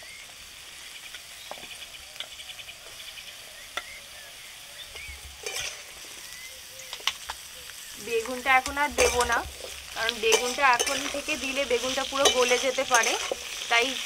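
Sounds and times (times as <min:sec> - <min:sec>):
vegetables sizzling in oil: 0:00.0 - 0:14.0
metal spatula stirring: 0:05.4 - 0:06.3, 0:08.2 - 0:14.0.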